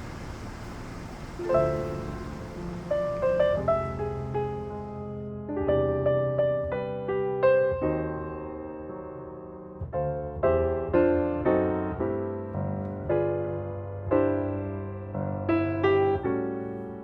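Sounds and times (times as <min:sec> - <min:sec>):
gentle piano music: 0:01.2 - 0:17.0.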